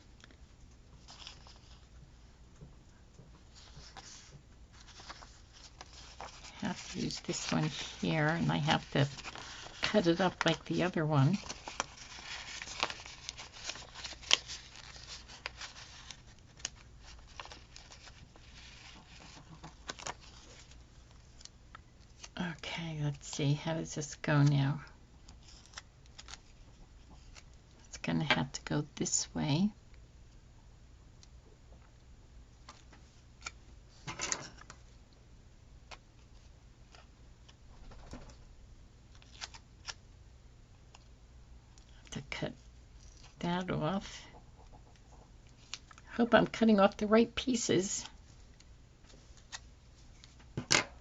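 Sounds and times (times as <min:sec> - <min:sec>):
faint steady hum: 0:00.0 - 0:51.0
paper rustling: 0:03.5 - 0:22.4, 0:25.3 - 0:27.5.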